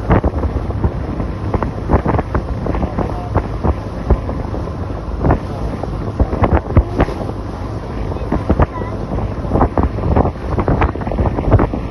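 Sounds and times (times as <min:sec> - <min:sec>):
hull knocking and splashing: 0:00.0 - 0:11.9
speedboat engine: 0:00.0 - 0:11.9
wind buffeting microphone: 0:00.0 - 0:11.9.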